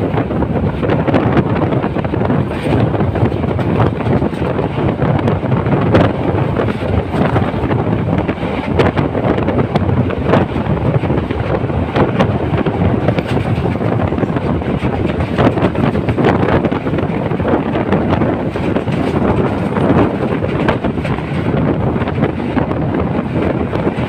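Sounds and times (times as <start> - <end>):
train clacks and knocks: 0.0 - 24.0
train running on track: 0.0 - 24.0
wind buffeting microphone: 0.0 - 24.0.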